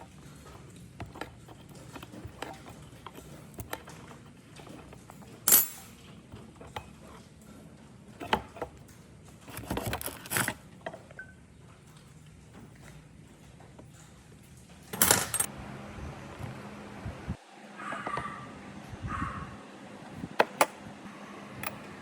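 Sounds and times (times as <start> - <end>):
metal parts rattling: 0.0 - 7.2, 8.2 - 11.0, 14.8 - 15.5
metal tools clicking and knocking: 0.0 - 7.2, 8.2 - 11.2.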